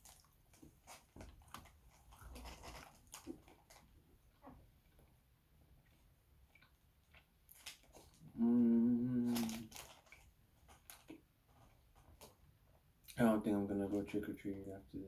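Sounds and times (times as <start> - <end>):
wet chewing mouth clicks: 5.8 - 11.2
person humming mmm: 8.3 - 9.7.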